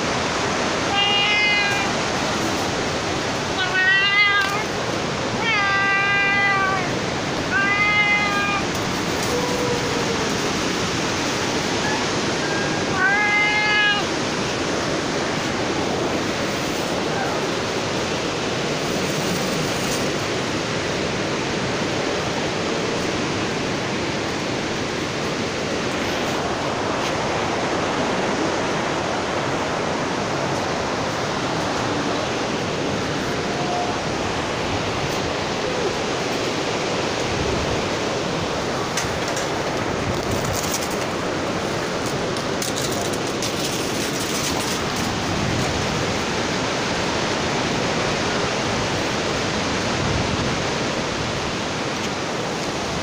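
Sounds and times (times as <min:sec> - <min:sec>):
strong wind rushing: 0:00.0 - 0:53.0
cat meowing: 0:00.8 - 0:02.1, 0:03.4 - 0:10.8, 0:11.8 - 0:14.2, 0:33.1 - 0:34.2.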